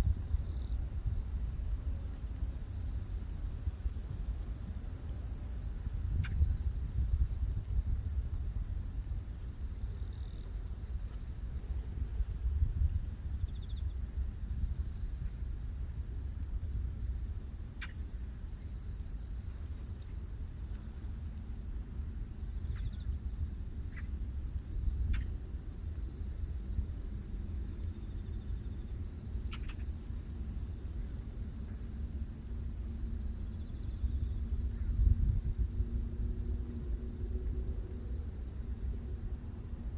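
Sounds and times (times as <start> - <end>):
insects trilling: 23.9 - 39.9
pulsed insect chirp: 27.4 - 29.9.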